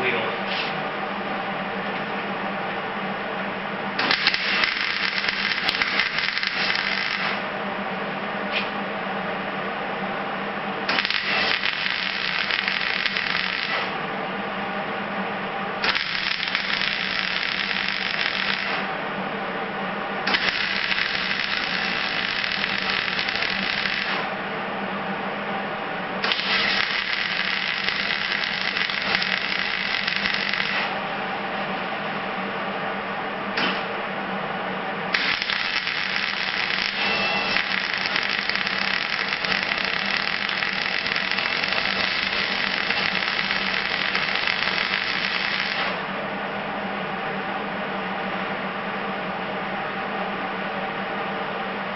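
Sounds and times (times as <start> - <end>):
steady hum: 0.0 - 51.9
mig welder crackling: 4.0 - 7.5, 10.9 - 14.0, 15.8 - 19.0, 20.2 - 24.4, 26.2 - 31.2, 35.1 - 46.1.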